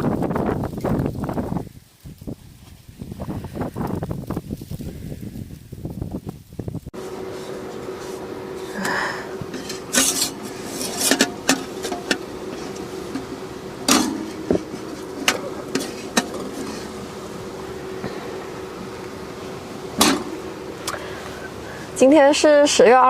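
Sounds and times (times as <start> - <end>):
steady hum: 6.7 - 23.0
dishes and utensils clattering: 9.5 - 16.9.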